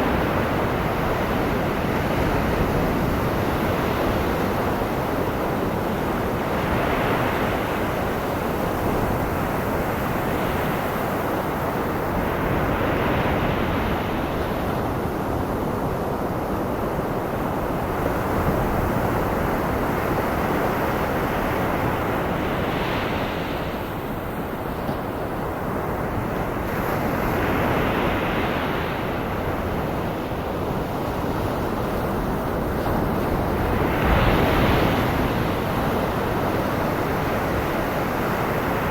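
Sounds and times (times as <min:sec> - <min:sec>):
ocean surf breaking: 0:21.0 - 0:38.9.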